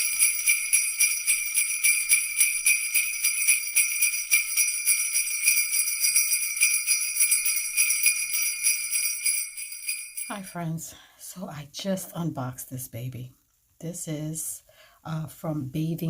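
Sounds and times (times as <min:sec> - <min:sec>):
sleigh bells jingling: 0:00.0 - 0:10.7.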